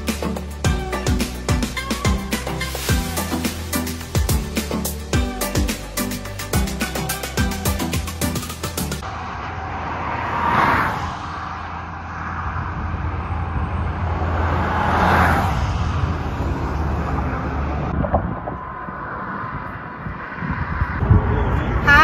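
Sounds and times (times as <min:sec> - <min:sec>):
vehicles passing close by: 0:08.4 - 0:22.0
low traffic rumble: 0:09.0 - 0:22.0.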